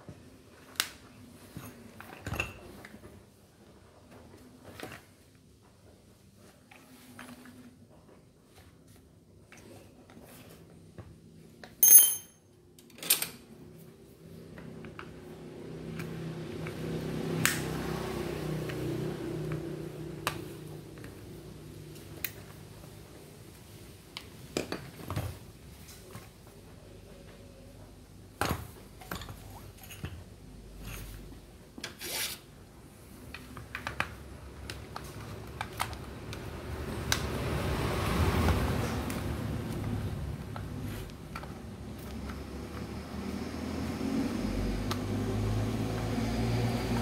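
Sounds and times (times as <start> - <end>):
metal parts clinking: 11.8 - 12.4
tools and parts clicking: 11.8 - 13.4.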